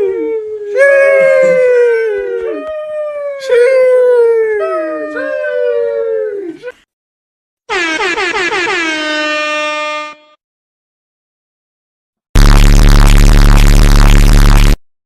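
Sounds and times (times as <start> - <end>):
animal howling: 0.0 - 6.7.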